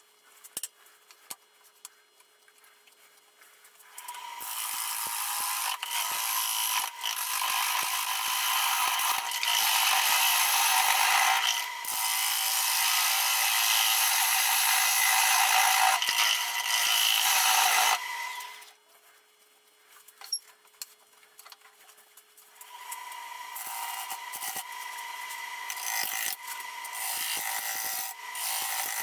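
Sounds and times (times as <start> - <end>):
gouge cutting wood on lathe: 4.0 - 18.7, 22.6 - 29.0.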